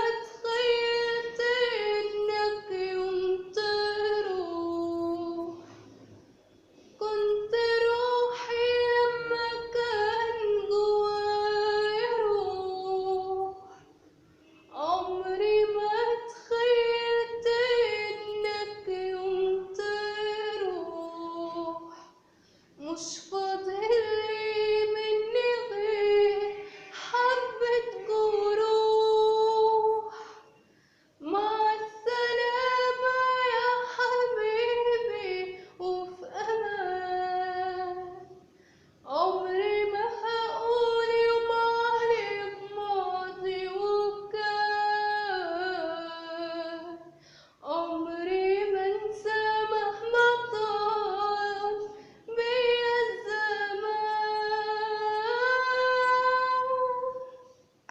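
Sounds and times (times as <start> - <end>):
woman singing unaccompanied: 0.0 - 5.6, 7.0 - 13.8, 14.7 - 22.1, 22.8 - 30.4, 31.2 - 38.4, 39.0 - 57.5
woman breathing: 30.1 - 31.2, 38.4 - 39.0, 47.1 - 47.6, 51.9 - 52.3.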